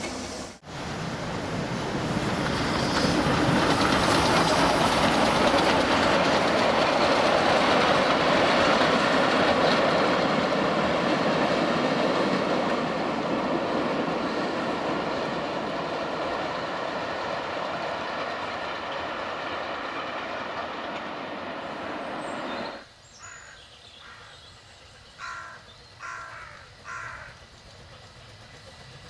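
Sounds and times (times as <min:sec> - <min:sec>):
train rumbling past: 0:00.0 - 0:29.0
crow-like caws: 0:23.2 - 0:24.4, 0:25.2 - 0:27.4.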